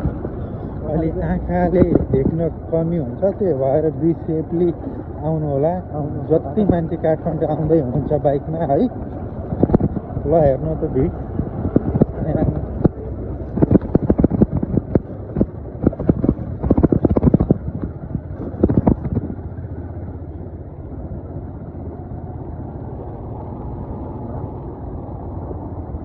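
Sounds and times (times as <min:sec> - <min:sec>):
motorbike engine: 0:00.0 - 0:26.0
sharp knocks and rattles: 0:06.6 - 0:19.6.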